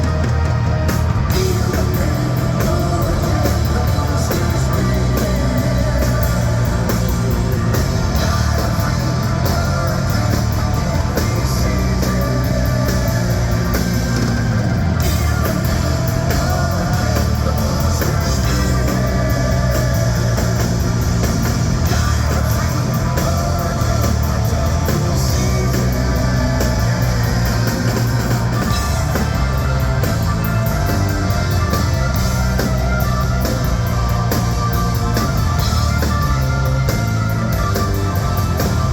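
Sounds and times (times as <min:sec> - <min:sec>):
hard rock band playing: 0:00.0 - 0:38.9.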